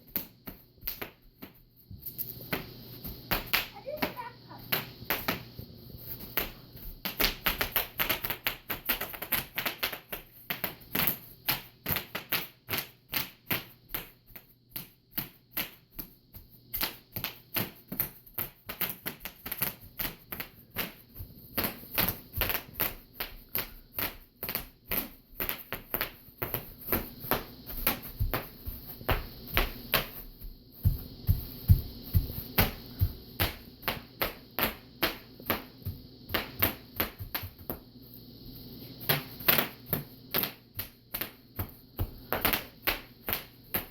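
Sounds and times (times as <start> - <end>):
bubble wrap popping: 16.8 - 37.8.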